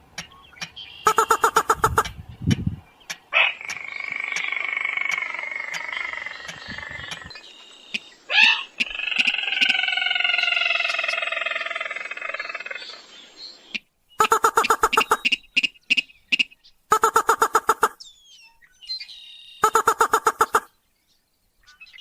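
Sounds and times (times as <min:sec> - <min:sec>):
rail bird calls: 0:00.0 - 0:20.8
fast run of sharp bird notes: 0:01.0 - 0:02.2, 0:14.2 - 0:15.6, 0:19.6 - 0:20.7.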